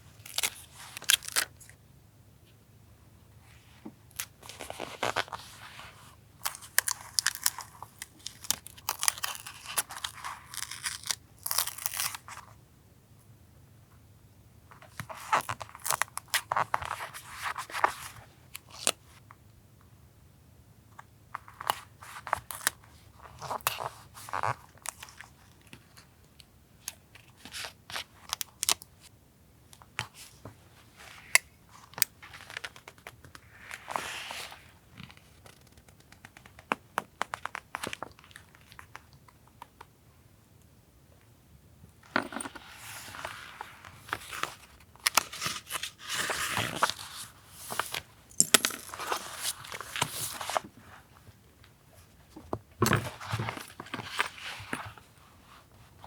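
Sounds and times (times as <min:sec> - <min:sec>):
paper rustling and crinkling: 0:42.3 - 0:51.1.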